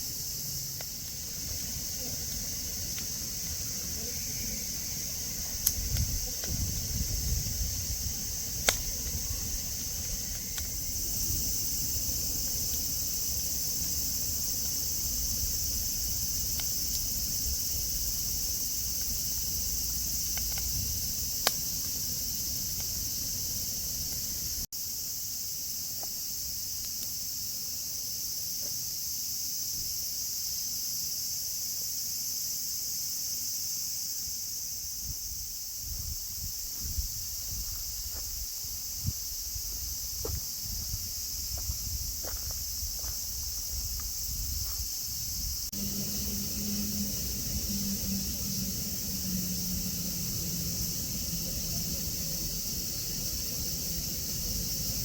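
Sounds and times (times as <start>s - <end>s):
insects droning: 0.0s - 55.0s
low rumble: 45.5s - 55.0s.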